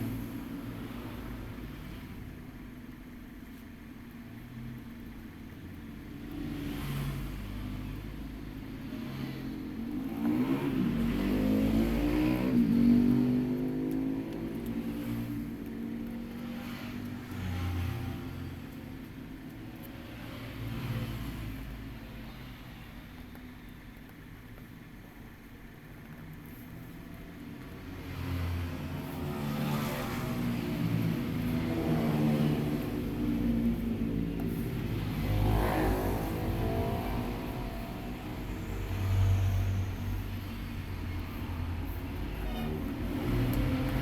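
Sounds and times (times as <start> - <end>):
vehicle engine passing by: 9.0 - 15.6, 16.2 - 18.7, 27.7 - 44.0.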